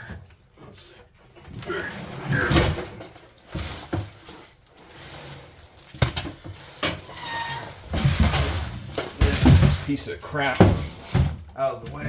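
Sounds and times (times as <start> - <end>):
packaging rustling: 2.7 - 10.0
knocks and clatter: 7.8 - 12.0.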